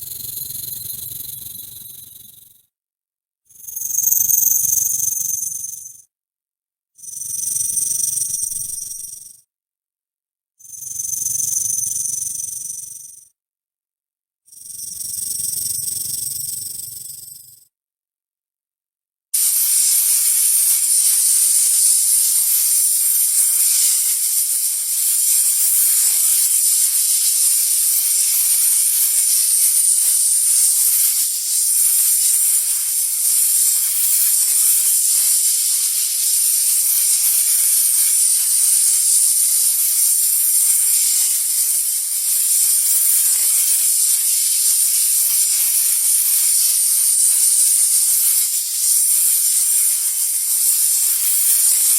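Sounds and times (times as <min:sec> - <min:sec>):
snake hissing: 0:19.4 - 0:51.9.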